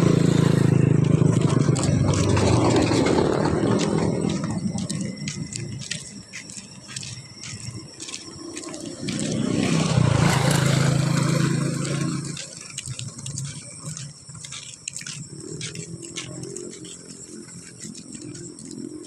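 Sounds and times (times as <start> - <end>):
vehicle engine passing: 0.0 - 5.7, 8.6 - 14.0.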